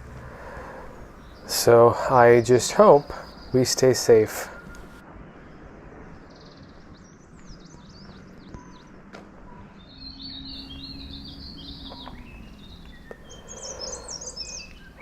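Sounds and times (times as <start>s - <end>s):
low background rumble: 0.0s - 1.7s
small birds twittering: 0.0s - 5.0s, 6.1s - 15.0s.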